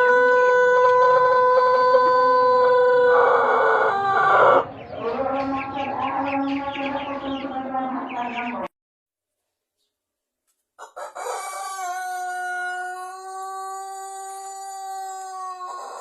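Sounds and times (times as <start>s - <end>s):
rooster crowing: 0.0s - 4.6s, 10.8s - 16.0s
fowl clucking: 0.0s - 5.8s.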